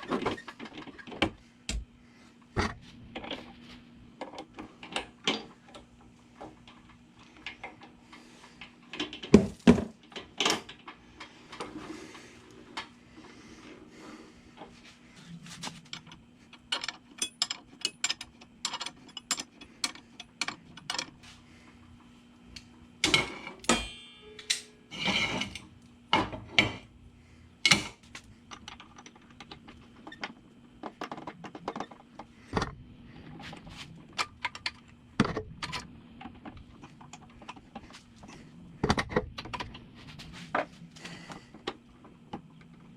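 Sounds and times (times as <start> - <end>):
tools and metal parts clanking: 15.7 - 21.2, 23.0 - 26.9.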